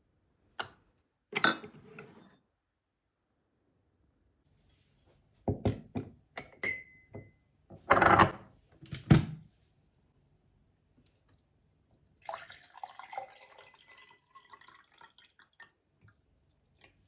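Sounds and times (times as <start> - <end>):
dishes and glassware clinking: 1.4 - 2.3, 5.6 - 8.4.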